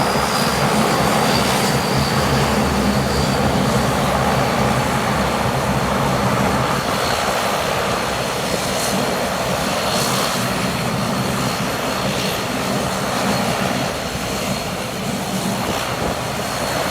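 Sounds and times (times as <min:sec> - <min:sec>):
turboprop engines droning: 0:00.0 - 0:16.9.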